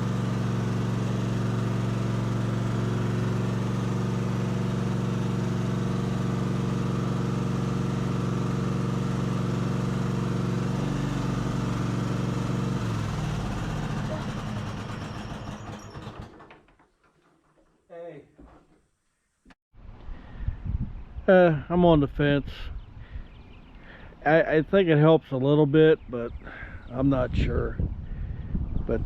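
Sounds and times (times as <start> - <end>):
gasoline engine running: 0.0 - 16.5.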